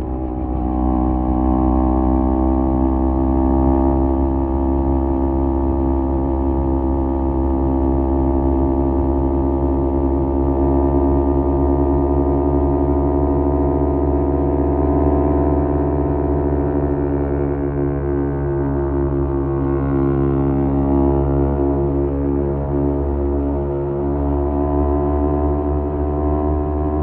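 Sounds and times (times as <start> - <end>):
motorcycle exhaust drone: 0.0 - 27.0.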